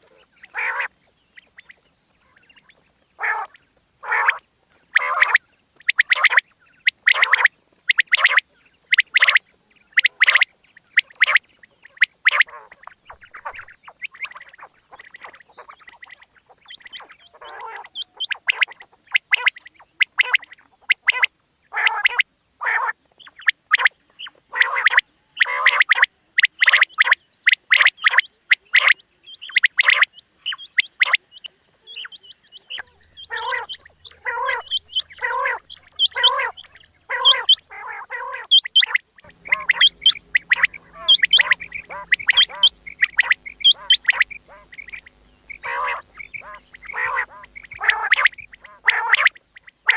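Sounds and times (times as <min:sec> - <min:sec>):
quail calling: 0:00.0 - 0:49.9.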